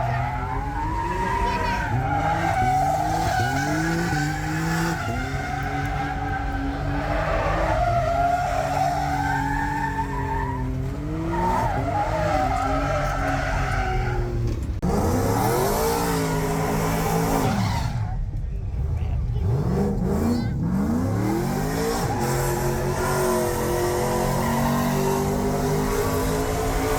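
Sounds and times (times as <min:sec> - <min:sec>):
car engine revving high: 0:18.8 - 0:26.9.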